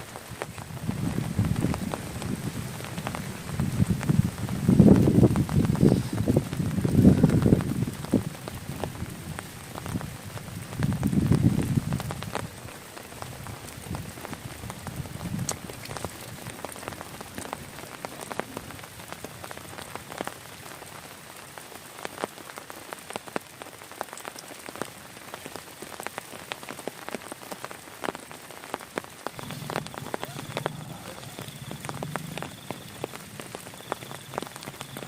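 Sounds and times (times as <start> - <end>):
heavy rain ticking on surface: 0.0 - 35.0
low rumble: 29.4 - 33.0.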